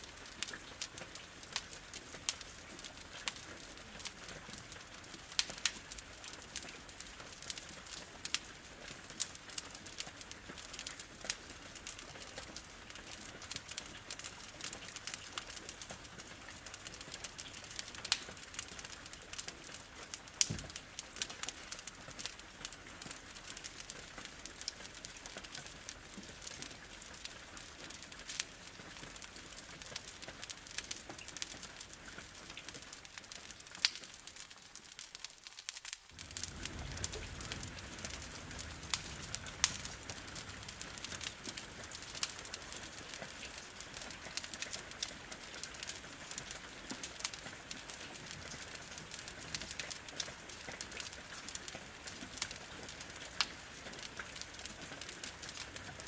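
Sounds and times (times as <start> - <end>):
wood fire crackling and popping: 0.0 - 56.0
rain hissing: 36.1 - 44.1
low steady drone: 36.2 - 41.6.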